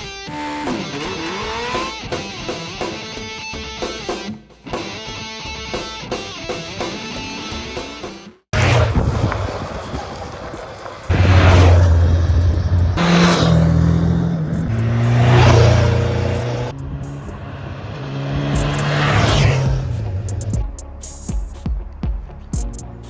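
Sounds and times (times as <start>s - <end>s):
vehicle engines revving: 0.0s - 2.0s, 8.6s - 23.0s
vehicles passing at speed: 8.6s - 22.9s.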